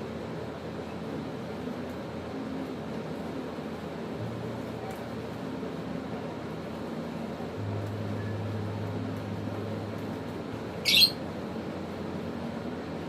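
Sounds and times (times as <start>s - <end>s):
low hum: 0.0s - 13.0s
bird shrill squawk: 10.8s - 11.2s.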